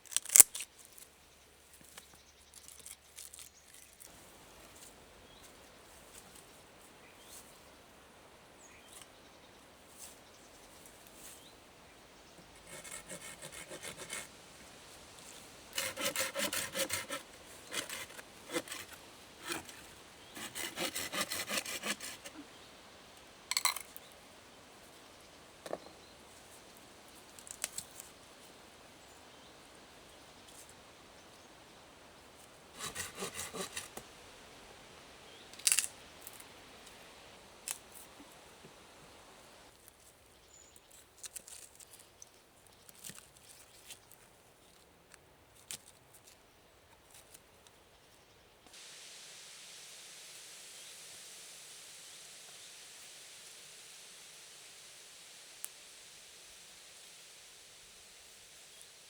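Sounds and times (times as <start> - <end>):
hand saw sawing wood: 12.6 - 14.3, 15.7 - 22.4, 32.7 - 34.0.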